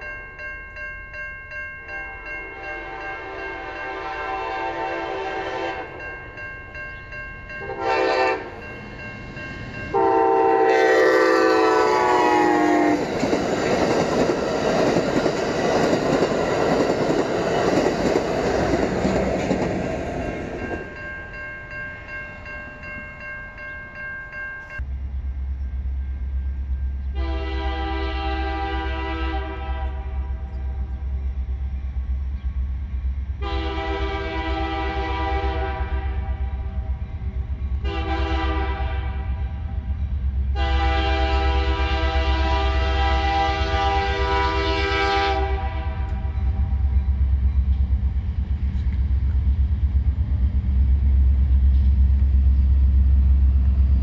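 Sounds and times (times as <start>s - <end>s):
low train rumble: 0.0s - 54.0s
locomotive air horn: 2.0s - 6.0s, 7.6s - 8.6s, 9.9s - 13.0s, 27.1s - 30.8s, 33.4s - 36.7s, 37.8s - 39.6s, 40.5s - 46.4s.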